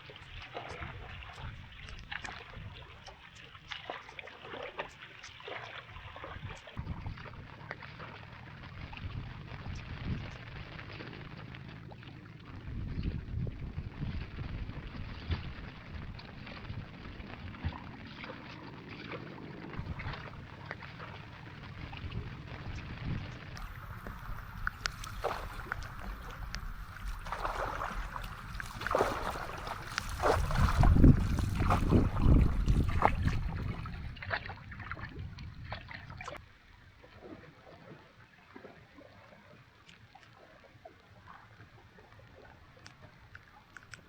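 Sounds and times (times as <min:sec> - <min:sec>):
wind rumble on microphone: 0:00.0 - 0:03.5, 0:05.9 - 0:36.4
water splashing and lapping: 0:00.0 - 0:12.3, 0:14.5 - 0:36.4.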